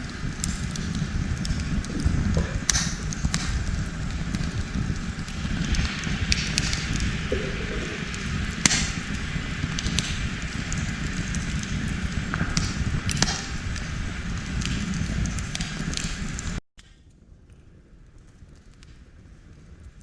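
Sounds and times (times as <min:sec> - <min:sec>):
campfire crackling and popping: 0:00.0 - 0:20.0
low steady rumble: 0:00.6 - 0:15.2.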